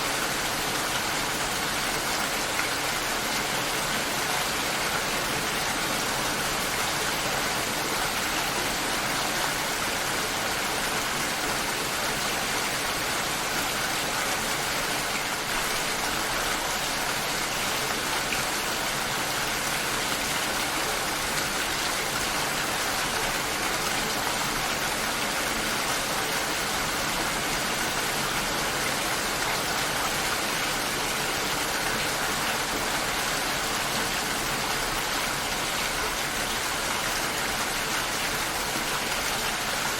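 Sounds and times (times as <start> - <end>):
rain pattering on surfaces: 0.1 - 39.9.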